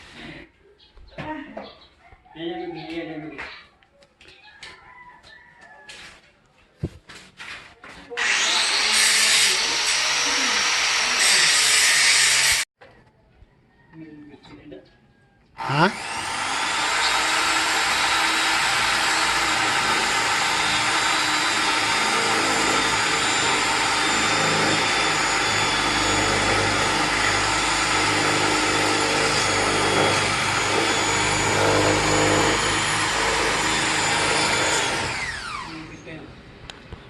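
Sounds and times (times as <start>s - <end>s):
high-speed electric motor whine: 15.6s - 36.2s.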